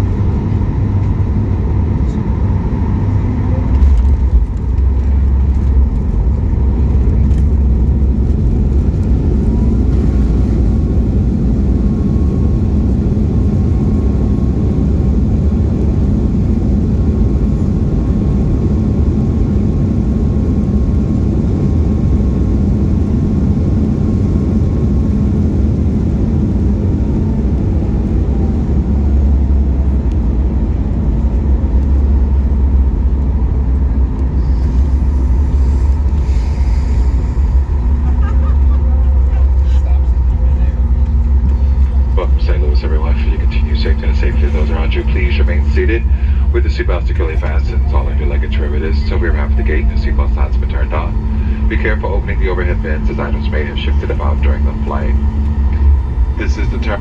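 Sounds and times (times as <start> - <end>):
aircraft cabin rumble: 0.0 - 57.0
faint high whine: 41.5 - 57.0.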